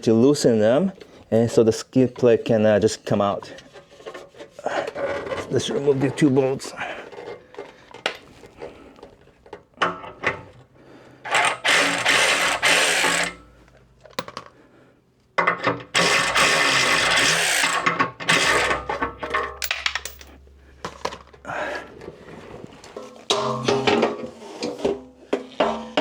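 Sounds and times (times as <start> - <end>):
motorised socket tool spinning: 11.3 - 13.4, 16.0 - 18.9
metal clicks and knocks: 17.8 - 21.4.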